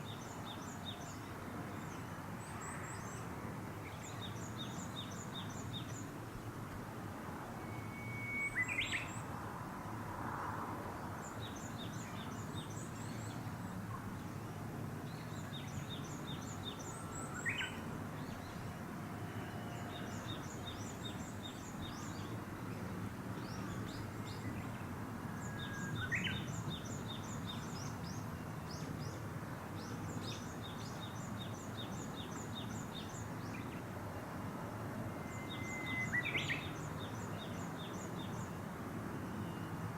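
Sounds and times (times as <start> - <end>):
outdoor background hiss: 0.0 - 39.9
bird whistled call: 7.6 - 9.2, 35.3 - 36.7.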